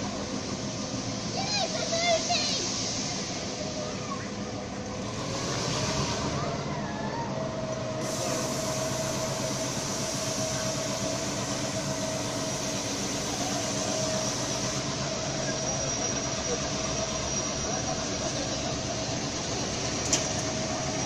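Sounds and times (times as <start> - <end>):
carriage wheels on track: 7.7 - 21.0.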